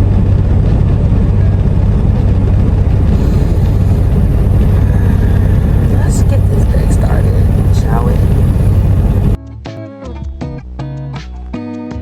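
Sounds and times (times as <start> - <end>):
diesel truck engine rumbling: 0.2 - 9.4.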